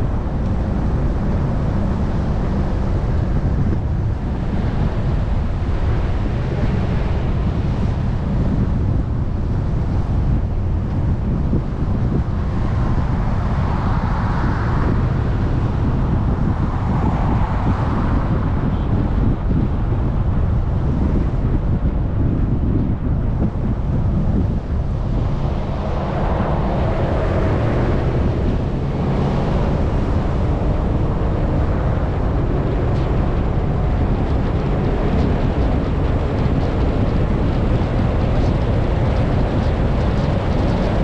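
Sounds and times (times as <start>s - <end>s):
wind buffeting microphone: 0.0s - 41.0s
vehicle engine running: 23.4s - 41.0s.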